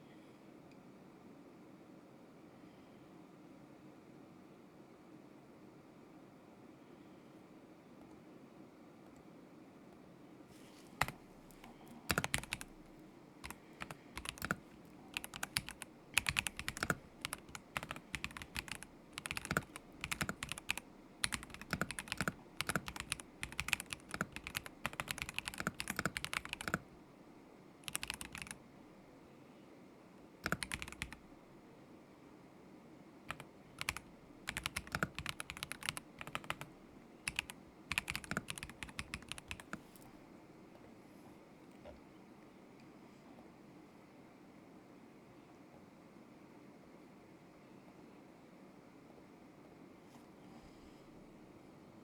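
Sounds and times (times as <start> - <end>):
mechanical keyboard typing: 11.0 - 26.9, 27.8 - 28.6, 30.4 - 31.2, 33.3 - 39.9.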